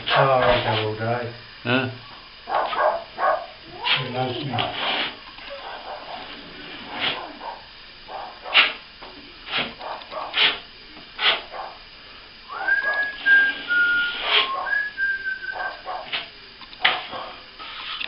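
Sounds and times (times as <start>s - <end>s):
sharp noisy strokes: 8.4s - 11.8s, 12.5s - 18.0s
person whistling: 12.5s - 15.6s.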